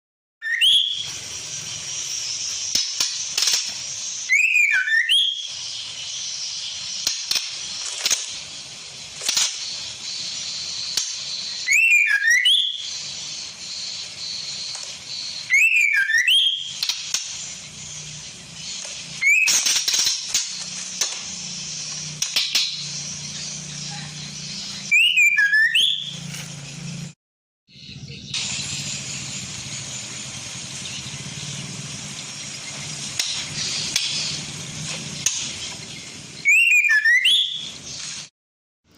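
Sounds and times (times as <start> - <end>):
bird whistled calls: 0.4 - 27.0, 27.7 - 38.3
steady high hiss: 0.7 - 4.7, 5.3 - 15.6, 16.5 - 24.9, 28.3 - 36.5.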